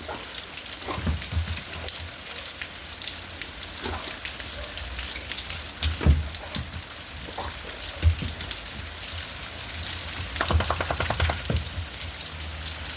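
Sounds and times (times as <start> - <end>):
steady rain: 0.0 - 12.9
hail hits: 5.5 - 12.2.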